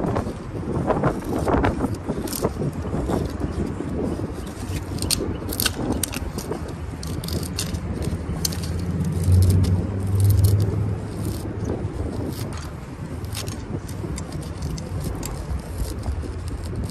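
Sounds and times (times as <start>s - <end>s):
sharp clicks and rattles: 0.0s - 16.9s
car engine humming: 6.5s - 16.8s.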